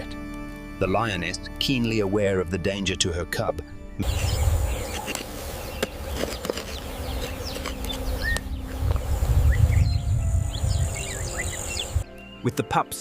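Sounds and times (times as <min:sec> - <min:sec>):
insects buzzing: 0:04.0 - 0:12.3.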